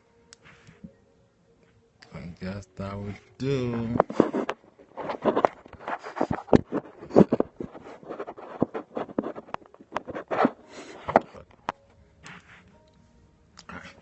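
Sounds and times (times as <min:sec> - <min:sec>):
microphone handling noise: 0:03.8 - 0:10.5.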